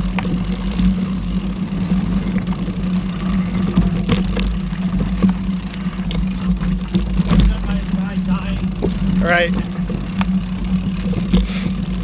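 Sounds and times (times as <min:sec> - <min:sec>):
bike clicks and rattles: 0:00.0 - 0:12.0
bike tyres rumbling: 0:00.0 - 0:12.0
high squeal: 0:03.0 - 0:05.0.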